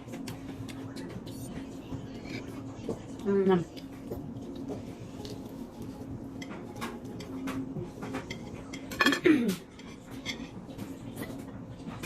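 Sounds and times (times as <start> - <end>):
cutlery and dishes clinking: 6.4 - 12.0.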